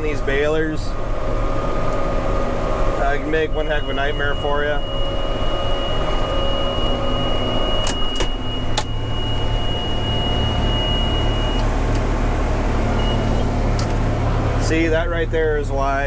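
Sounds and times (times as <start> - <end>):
tractor diesel engine running: 0.0 - 16.0
high-pitched electronic tone: 3.0 - 11.8.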